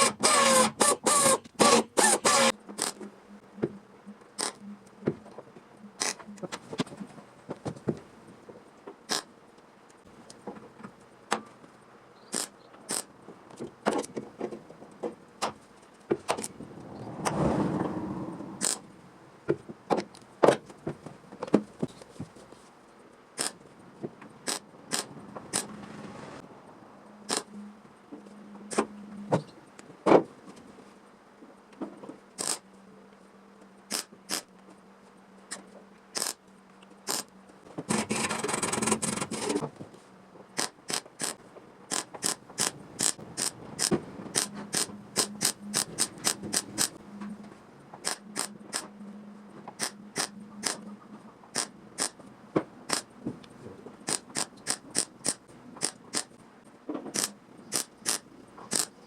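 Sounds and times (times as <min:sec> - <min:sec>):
sharp mechanical clicks: 0:00.0 - 0:03.1, 0:04.4 - 0:04.6, 0:06.0 - 0:06.5, 0:09.1 - 0:09.3, 0:12.3 - 0:13.1, 0:18.6 - 0:18.8, 0:23.4 - 0:23.6, 0:24.4 - 0:25.7, 0:27.3 - 0:27.5, 0:32.4 - 0:32.6, 0:33.9 - 0:34.5, 0:35.5 - 0:36.4, 0:37.0 - 0:37.3, 0:37.9 - 0:39.6, 0:40.6 - 0:47.0, 0:48.0 - 0:48.9, 0:49.8 - 0:50.8, 0:51.5 - 0:52.2, 0:52.9 - 0:53.1, 0:54.0 - 0:56.4, 0:57.1 - 0:59.0.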